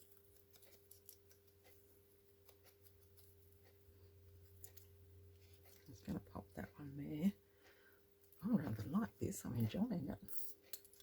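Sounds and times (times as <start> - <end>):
paper cut-outs clicking and tapping: 0.0 - 6.2.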